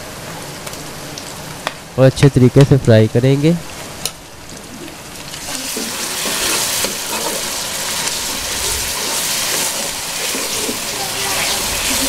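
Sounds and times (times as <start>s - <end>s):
onions sizzling in hot oil: 3.7s - 12.0s
ladle stirring in metal pan: 5.2s - 12.0s.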